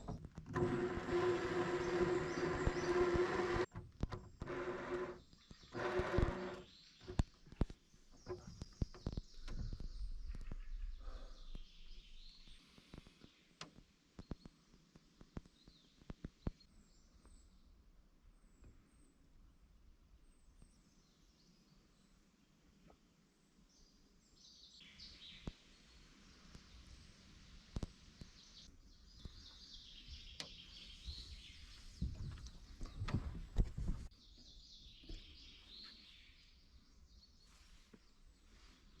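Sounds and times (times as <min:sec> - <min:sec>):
small birds chirping: 0:01.6 - 0:17.8, 0:23.6 - 0:39.0.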